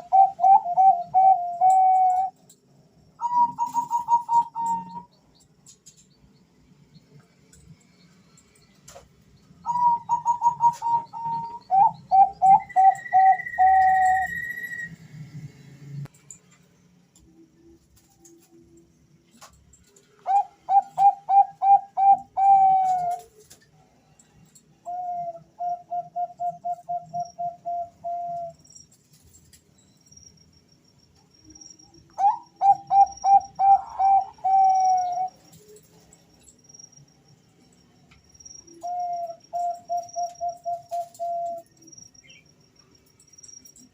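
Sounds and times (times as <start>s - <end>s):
dove cooing: 0.0s - 2.3s, 3.2s - 5.1s, 9.7s - 14.6s, 20.2s - 23.4s, 24.8s - 28.6s, 32.2s - 35.4s, 38.8s - 41.6s
doves cooing: 0.0s - 2.3s, 20.2s - 23.4s, 32.2s - 35.5s.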